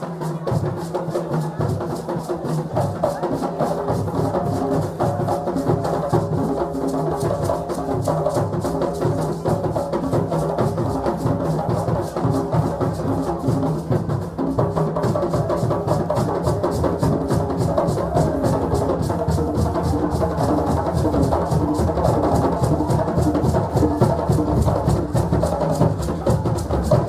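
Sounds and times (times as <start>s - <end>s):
festive crowd: 0.0s - 27.0s
hand drums playing fast rhythm: 0.0s - 27.0s.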